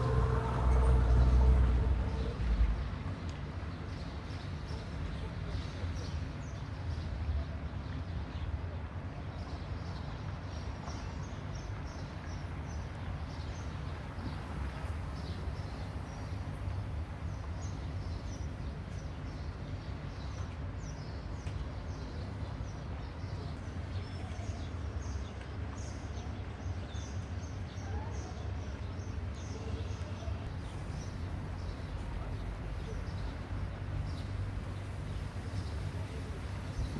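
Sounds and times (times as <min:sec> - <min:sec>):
low rumble: 0:00.0 - 0:03.4, 0:30.5 - 0:36.9
small birds chirping: 0:30.5 - 0:36.9.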